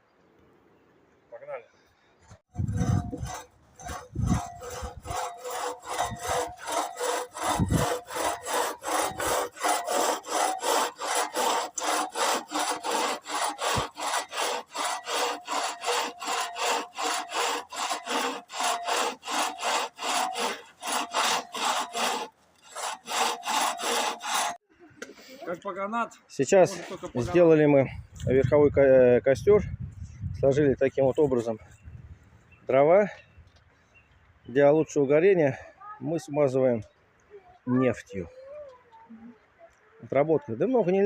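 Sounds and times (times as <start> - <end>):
hand saw cutting wood: 2.6 - 24.6.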